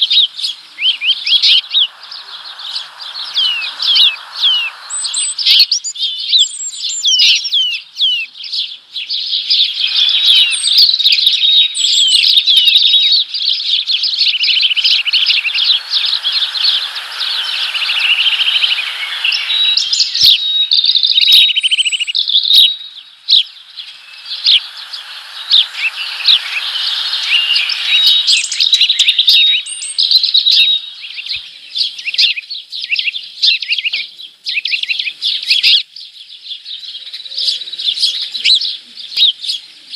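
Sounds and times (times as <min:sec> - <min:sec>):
small birds chirping: 0:00.0 - 0:39.9
soft rushing noise: 0:00.1 - 0:07.3, 0:13.8 - 0:31.0
bird rattling trills: 0:14.1 - 0:30.9.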